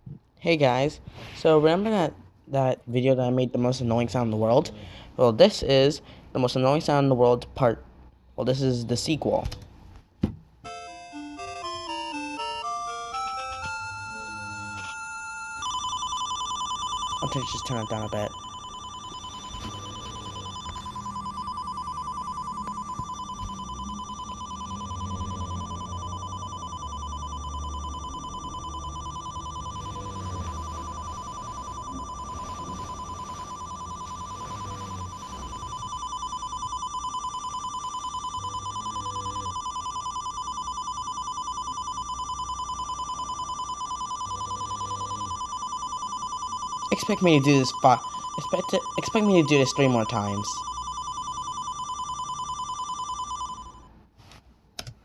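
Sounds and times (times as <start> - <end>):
pulsing electronic ringing tone: 10.7 - 53.9.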